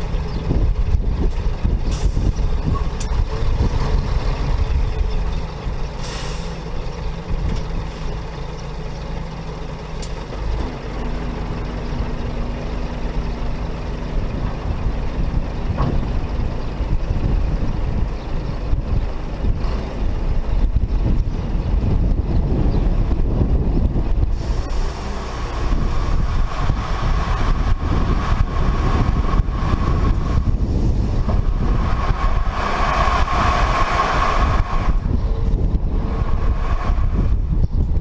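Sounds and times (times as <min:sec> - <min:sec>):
diesel truck engine running: 0:00.0 - 0:38.0
air brake hiss: 0:06.0 - 0:06.6.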